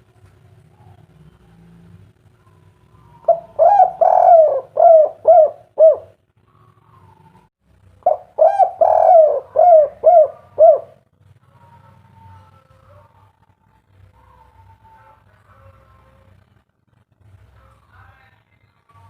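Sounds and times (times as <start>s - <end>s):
dove cooing: 0.6s - 13.3s.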